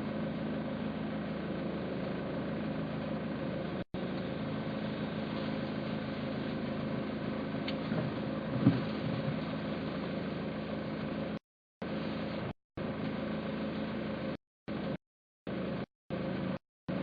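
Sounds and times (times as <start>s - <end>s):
car engine humming: 0.0s - 17.0s
short thump: 8.0s - 9.4s.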